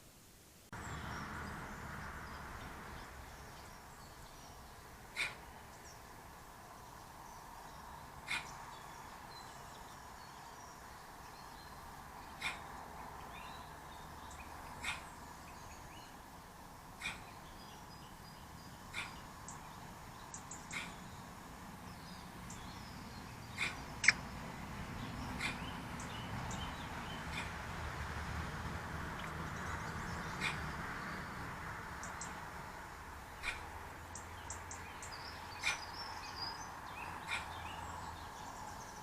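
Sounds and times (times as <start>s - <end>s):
sharp animal calls: 5.1s - 5.6s, 8.2s - 8.6s, 12.3s - 12.8s, 14.7s - 15.2s, 17.0s - 17.5s, 18.9s - 19.6s, 20.3s - 21.1s, 23.5s - 24.3s, 25.2s - 25.8s, 27.2s - 27.6s, 30.3s - 30.8s, 33.4s - 33.8s, 35.5s - 36.1s, 37.0s - 37.6s.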